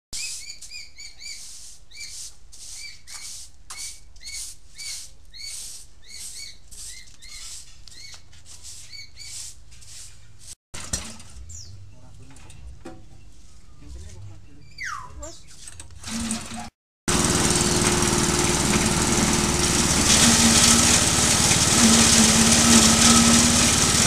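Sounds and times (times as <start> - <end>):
small birds chirping: 0.2 - 9.5, 13.1 - 15.7.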